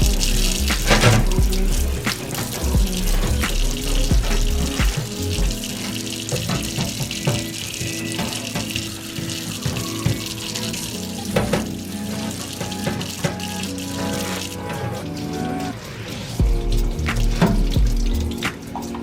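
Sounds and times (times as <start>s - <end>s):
background music with heavy bass: 0.0s - 15.8s, 16.4s - 19.0s
tap running into sink: 6.3s - 10.4s.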